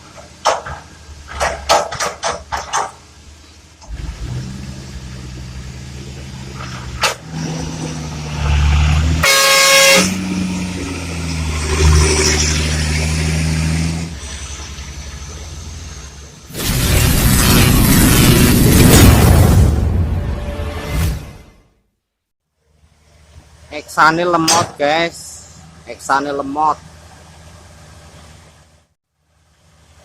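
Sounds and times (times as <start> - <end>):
sharp knocks: 0.4 - 3.0
horn blast: 9.2 - 10.5.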